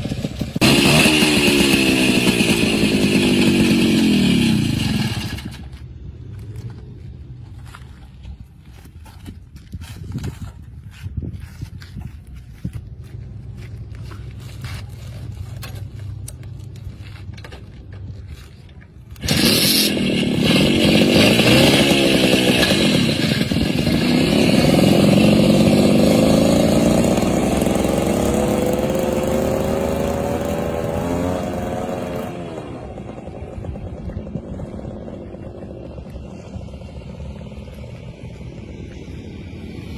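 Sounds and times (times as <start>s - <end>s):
motorcycle engine revving: 0.0s - 7.4s, 19.0s - 39.9s.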